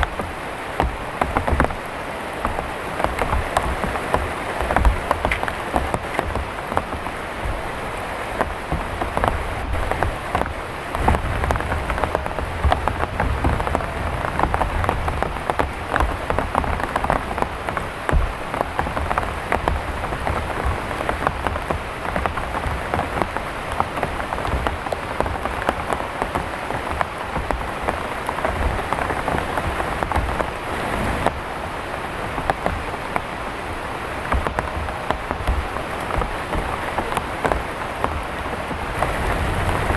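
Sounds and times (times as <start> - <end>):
low uneven rumble: 0.0 - 31.5
heavy rain falling: 0.0 - 39.9.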